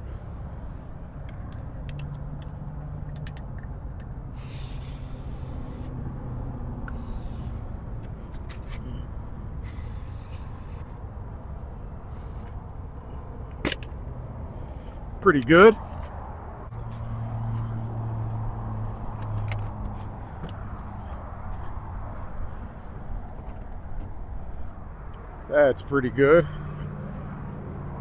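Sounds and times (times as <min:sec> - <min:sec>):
steady low rumble: 0:00.0 - 0:26.4
air hissing from tire valve: 0:03.0 - 0:15.1.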